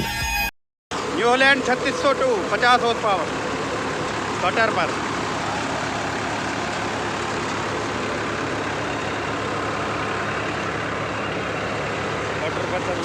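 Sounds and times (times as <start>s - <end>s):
tractor diesel engine drone: 0.9s - 13.0s.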